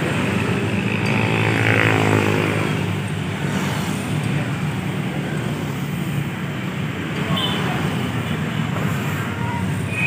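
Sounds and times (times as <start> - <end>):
vehicle passing: 0.0 - 4.1
low traffic rumble: 0.0 - 10.0.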